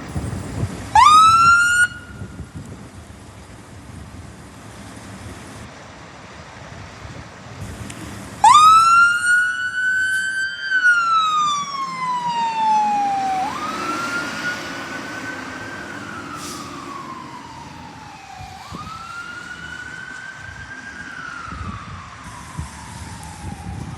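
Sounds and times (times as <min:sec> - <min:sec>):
truck engine rumbling: 0:00.0 - 0:23.9
fire engine siren wailing: 0:00.1 - 0:02.7, 0:07.6 - 0:23.9.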